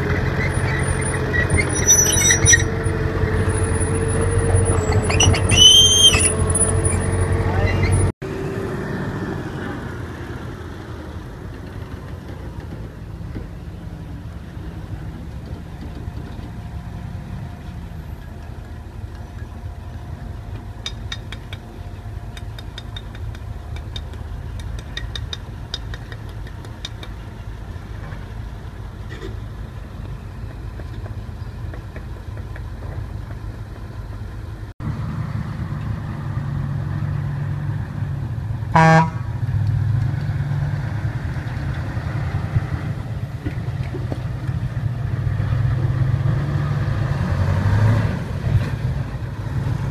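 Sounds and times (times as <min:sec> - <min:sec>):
heavy vehicle engine rumbling: 0:00.0 - 0:49.9
horn blast: 0:38.7 - 0:39.4.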